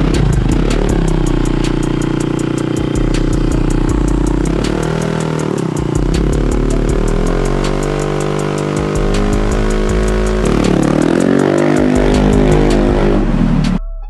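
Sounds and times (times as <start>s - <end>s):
scooter engine revving: 0.0s - 13.8s.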